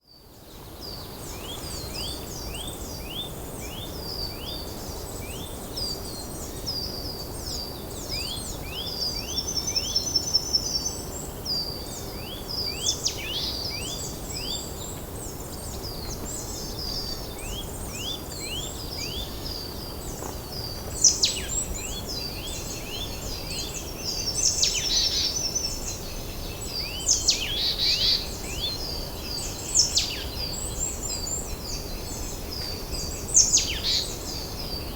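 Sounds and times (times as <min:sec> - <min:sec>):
songbirds chirping and trilling: 0:00.0 - 0:34.9.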